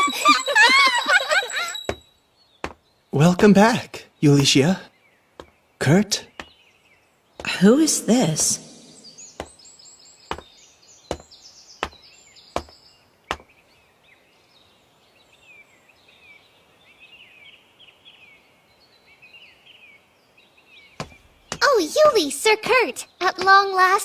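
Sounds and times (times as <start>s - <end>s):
small birds chirping: 0.0s - 24.0s
sharp knocks: 2.6s - 2.8s, 6.2s - 6.6s, 9.4s - 9.6s, 10.3s - 10.5s, 11.1s - 12.0s, 12.6s - 13.5s, 21.0s - 21.6s.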